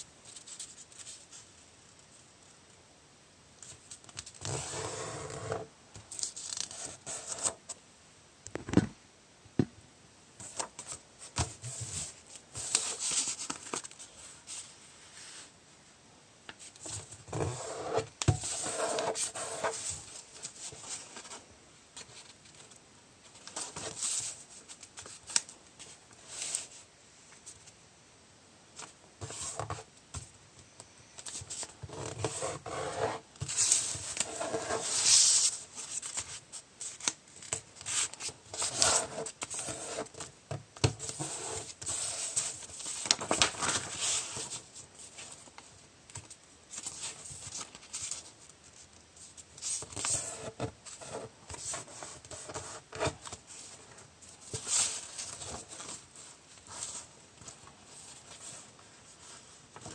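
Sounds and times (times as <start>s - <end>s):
paper rustling and folding: 3.6s - 7.7s, 10.4s - 15.5s, 16.6s - 26.8s, 31.2s - 59.9s
paper crinkles and taps: 12.6s - 14.0s, 41.8s - 44.6s, 45.2s - 48.3s.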